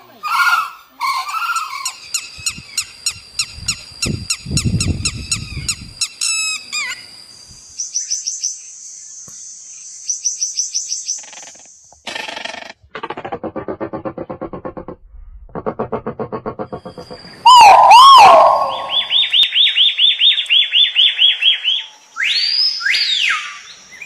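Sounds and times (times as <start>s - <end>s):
low pulsing sound: 12.9s - 19.2s
bird trilling: 15.7s - 21.3s
songbirds chirping: 16.8s - 24.0s.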